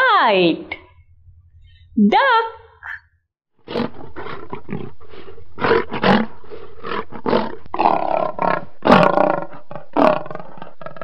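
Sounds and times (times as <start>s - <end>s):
lion roaring: 3.6s - 11.0s.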